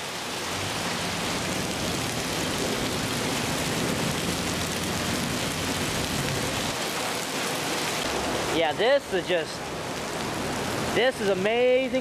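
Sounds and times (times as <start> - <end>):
rain and hail on a car: 0.0 - 12.0.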